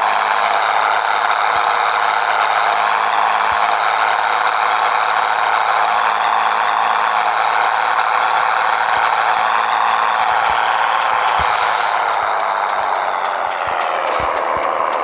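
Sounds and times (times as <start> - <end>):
truck engine running: 9.0 - 15.0.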